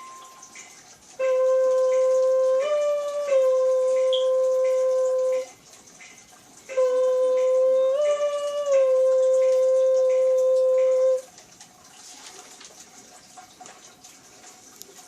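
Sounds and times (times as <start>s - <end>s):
flute playing long notes: 0.0s - 0.5s, 1.2s - 5.5s, 6.7s - 11.3s.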